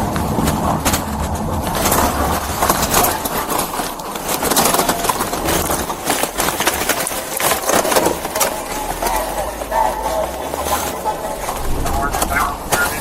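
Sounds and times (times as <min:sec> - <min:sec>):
vehicle road and wind noise: 0:00.0 - 0:13.0
sharp crackling clicks: 0:10.8 - 0:13.0.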